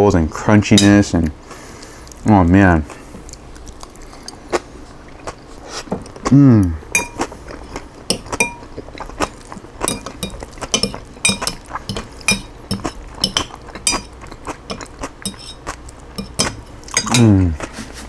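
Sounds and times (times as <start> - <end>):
utensil clinking against bowl: 0.8 - 1.1, 6.9 - 17.4.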